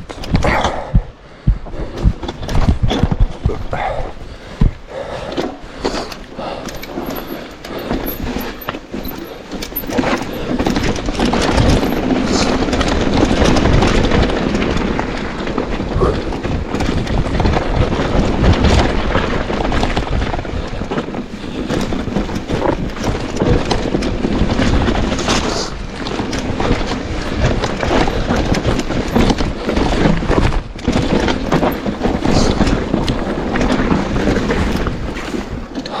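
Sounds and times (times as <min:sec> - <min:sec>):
bike clattering: 0:00.0 - 0:36.0
tyres rumbling over dirt and stones: 0:00.0 - 0:36.0
wind buffeting microphone: 0:00.0 - 0:36.0.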